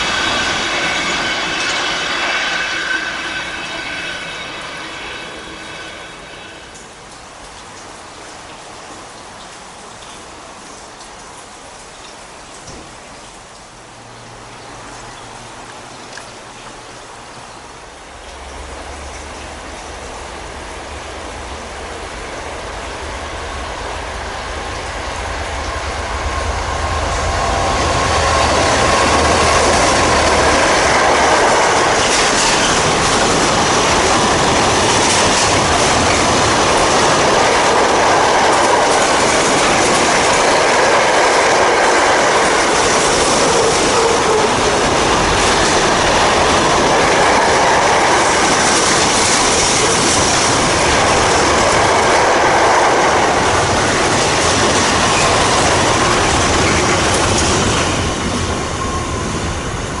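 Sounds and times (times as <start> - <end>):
diesel locomotive passing: 0.0 - 10.7, 12.5 - 60.0
wagon wheels rolling on rails: 27.9 - 58.5.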